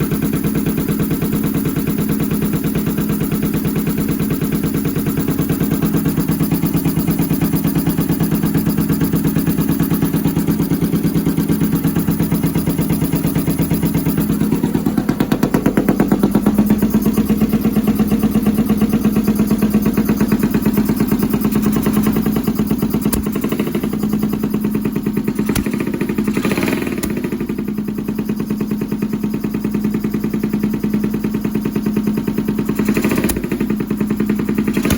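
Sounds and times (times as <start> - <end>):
motorcycle engine pulsing: 0.0 - 34.9
sharp clicks: 22.9 - 23.7.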